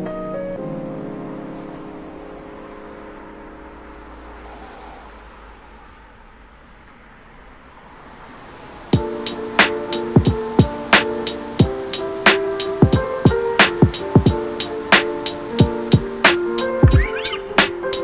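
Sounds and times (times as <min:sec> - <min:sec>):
road traffic rumble: 0:00.7 - 0:18.0.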